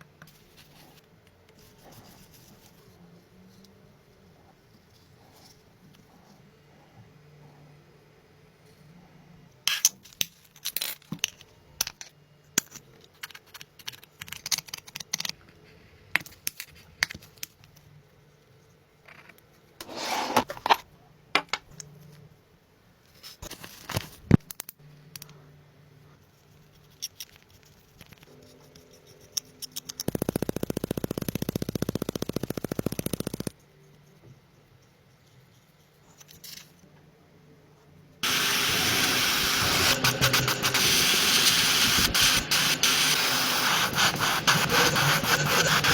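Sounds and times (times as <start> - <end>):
power tool pulsing: 30.1 - 33.5, 38.2 - 45.9.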